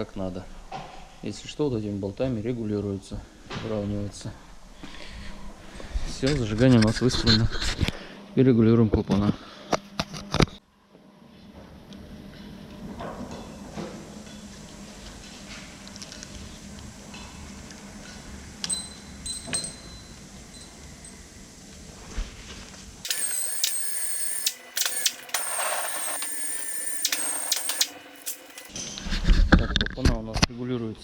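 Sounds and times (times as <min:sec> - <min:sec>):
hand tools clinking on metal: 0:23.1 - 0:28.7
high steady whine: 0:23.1 - 0:28.7.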